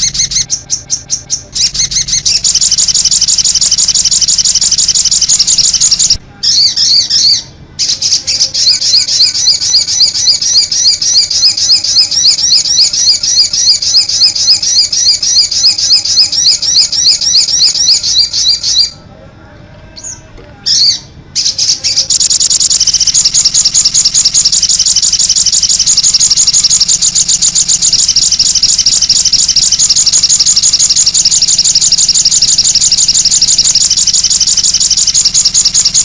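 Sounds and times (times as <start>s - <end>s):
songbird trilling and chirping: 0.0s - 19.0s, 20.0s - 36.0s.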